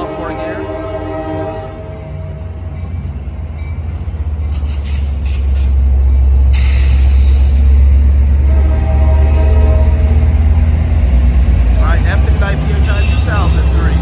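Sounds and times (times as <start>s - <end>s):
train horn: 0.0s - 2.7s, 8.4s - 10.7s
diesel locomotive rumble passing: 0.0s - 14.0s.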